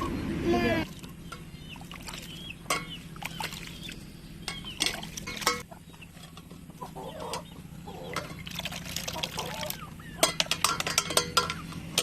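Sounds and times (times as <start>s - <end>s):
fowl clucking: 6.8s - 8.3s
sharp knocks and clatters: 10.2s - 12.0s.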